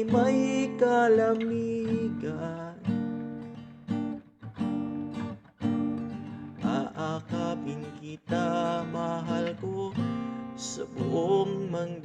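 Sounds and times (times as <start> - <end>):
person singing: 0.0 - 2.9, 6.6 - 12.0
acoustic guitar strumming chords: 0.0 - 12.0.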